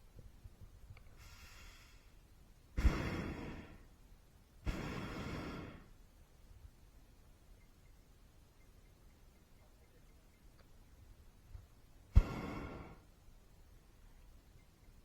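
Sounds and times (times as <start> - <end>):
propane burner blasts: 1.1 - 2.2, 2.8 - 3.8, 4.6 - 5.9, 12.1 - 13.1.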